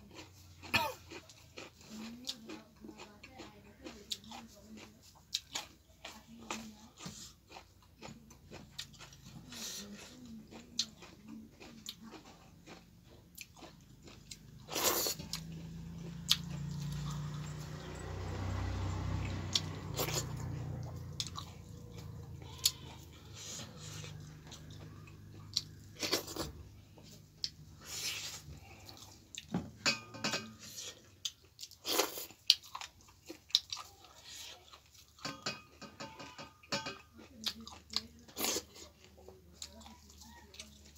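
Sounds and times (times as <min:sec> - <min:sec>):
chewing and biting food: 0:00.0 - 0:40.9.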